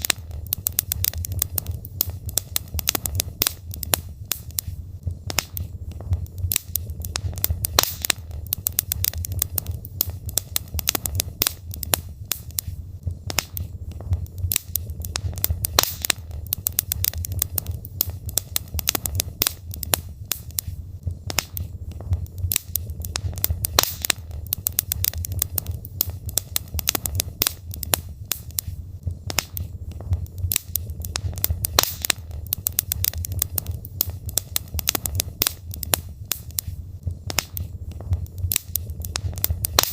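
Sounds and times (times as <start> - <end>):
logs crackling and popping: 0.0 - 39.9
low rumble of fire: 0.0 - 39.9.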